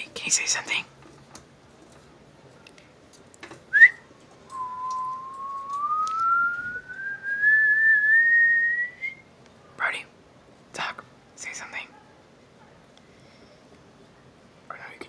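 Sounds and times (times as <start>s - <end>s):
person whistling rising pitch: 3.8s - 9.2s.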